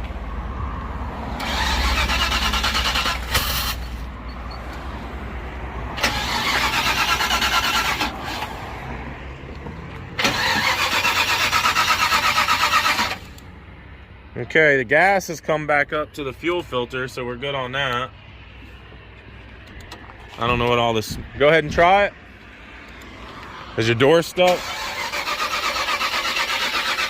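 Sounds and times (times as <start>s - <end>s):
starter cranking engine: 1.4s - 3.9s, 6.0s - 8.5s, 10.2s - 13.4s, 24.5s - 27.0s.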